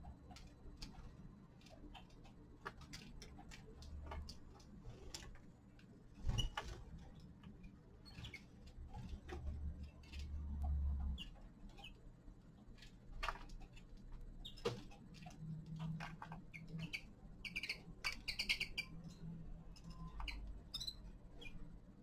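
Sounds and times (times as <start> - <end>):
finches chirping: 8.0 - 8.6, 11.1 - 12.0, 14.4 - 21.6.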